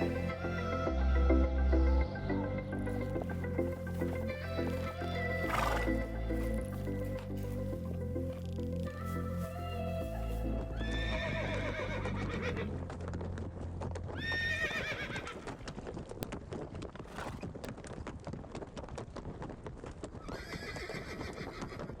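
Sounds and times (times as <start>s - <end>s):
horses whinnying: 3.5s - 7.0s, 10.8s - 12.8s, 14.2s - 15.7s, 20.2s - 22.0s
clatter of hooves: 10.2s - 22.0s.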